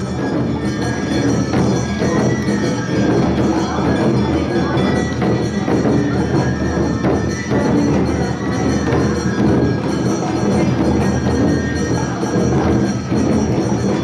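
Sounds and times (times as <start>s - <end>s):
flutes: 0.0s - 10.8s
drums: 0.0s - 14.0s
small hand-held gongs: 0.0s - 14.0s.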